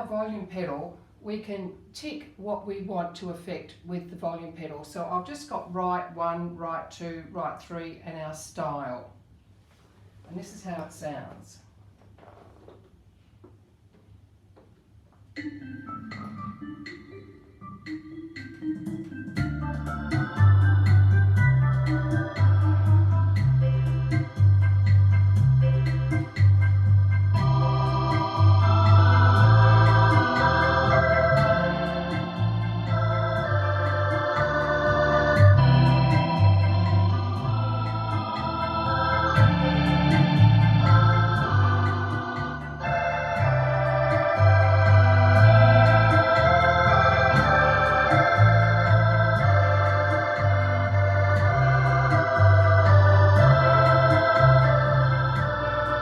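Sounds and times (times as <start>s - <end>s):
light percussion: 15.2s - 42.8s
keyboard organ voices: 15.4s - 56.0s
rumba accompaniment: 15.4s - 56.0s
pulsing bass line: 19.4s - 56.0s.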